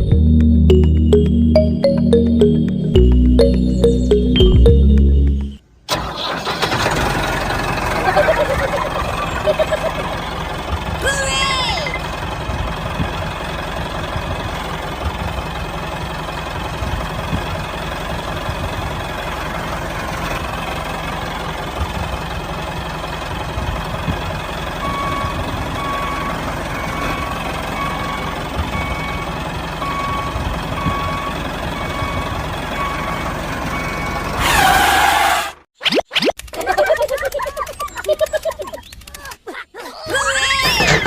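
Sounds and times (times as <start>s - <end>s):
tractor engine rumbling: 0.0s - 35.7s, 36.4s - 41.0s
reversing alarm beeping: 24.8s - 34.3s.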